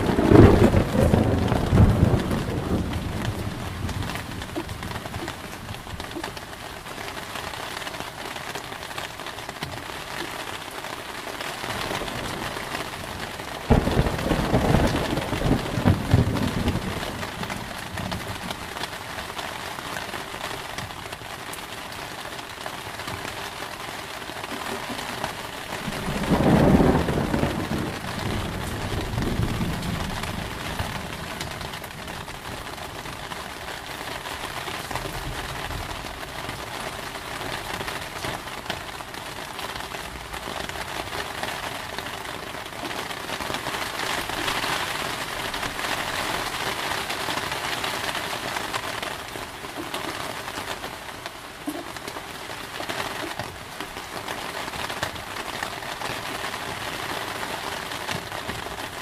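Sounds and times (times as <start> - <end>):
thunderclap rumbling: 0.0 - 6.3, 11.8 - 18.8, 25.5 - 33.2
steady rain: 0.0 - 59.0.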